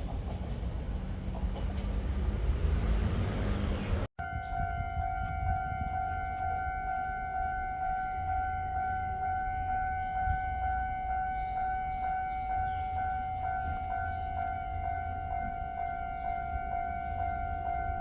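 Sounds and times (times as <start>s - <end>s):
high electronic warning tone: 4.2s - 18.0s.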